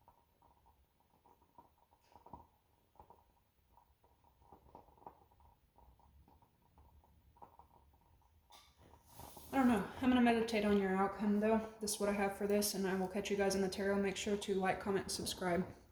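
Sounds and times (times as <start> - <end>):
small taps and rustles: 0.0 - 9.6.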